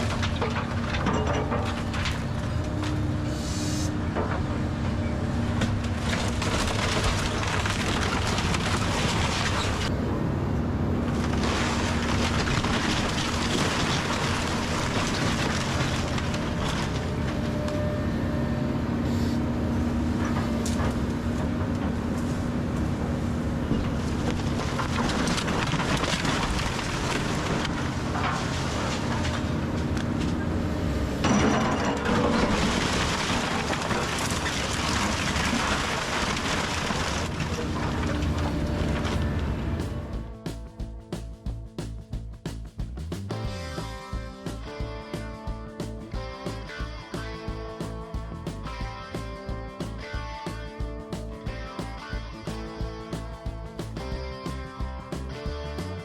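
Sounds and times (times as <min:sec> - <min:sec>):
wood and debris cracking: 0:00.0 - 0:03.1, 0:05.5 - 0:09.9, 0:11.1 - 0:17.6, 0:20.2 - 0:30.5, 0:31.2 - 0:40.6
excavator diesel engine: 0:00.0 - 0:42.3, 0:43.0 - 0:56.0.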